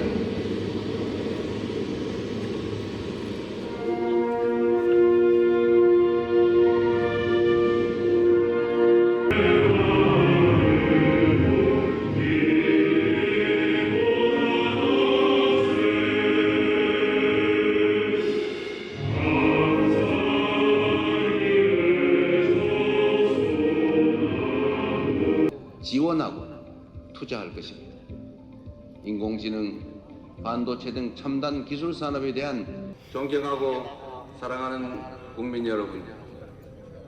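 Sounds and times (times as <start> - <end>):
choir singing sustained chords: 0.0 - 25.8.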